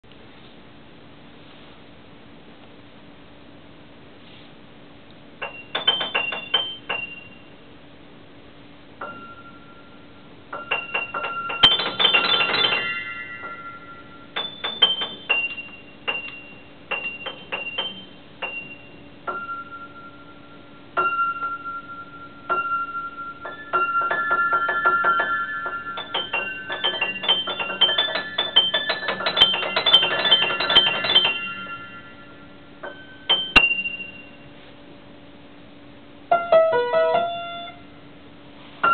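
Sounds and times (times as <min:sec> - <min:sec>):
solo piano: 0:09.0 - 0:09.8, 0:10.5 - 0:34.4, 0:36.3 - 0:38.0.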